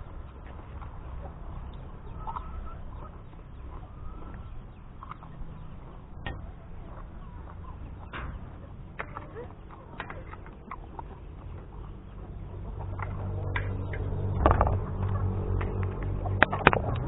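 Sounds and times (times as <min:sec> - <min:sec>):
faint bird calls: 0:00.0 - 0:14.4
low rumble: 0:00.0 - 0:17.0.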